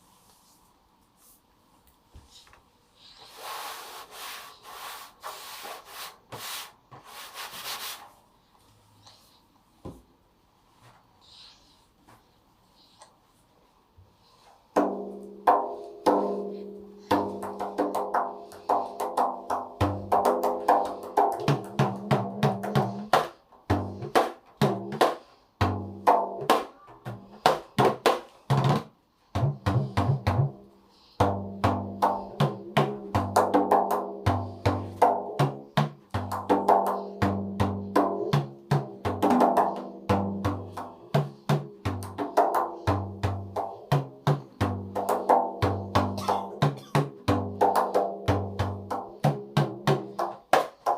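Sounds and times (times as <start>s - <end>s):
hand drums playing fast rhythm: 17.1s - 30.6s, 31.2s - 50.9s.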